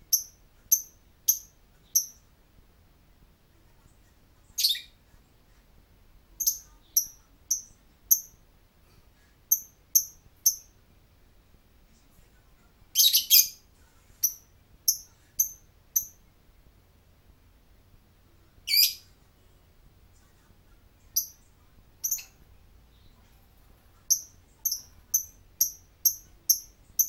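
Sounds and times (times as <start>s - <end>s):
bird chirping high-pitched: 0.1s - 2.2s, 4.6s - 5.0s, 6.4s - 8.4s, 9.5s - 10.7s, 12.9s - 13.6s, 18.7s - 19.1s, 22.0s - 22.4s, 24.1s - 27.0s.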